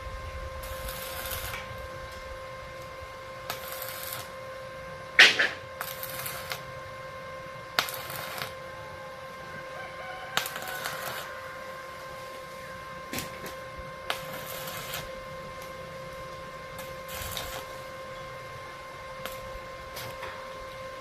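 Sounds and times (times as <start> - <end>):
arc welding crackling: 0.0 - 21.0
steady hum: 0.0 - 21.0
chicken calling: 9.8 - 11.6.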